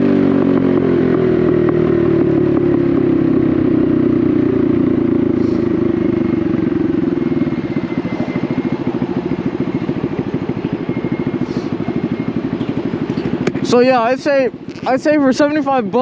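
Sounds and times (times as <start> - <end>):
motorcycle engine putter: 11.8 - 13.9, 14.5 - 15.1.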